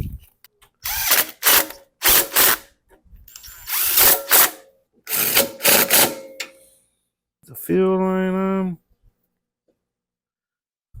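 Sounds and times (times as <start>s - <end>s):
cordless drill bursts: 0.8s - 2.7s, 3.4s - 6.2s.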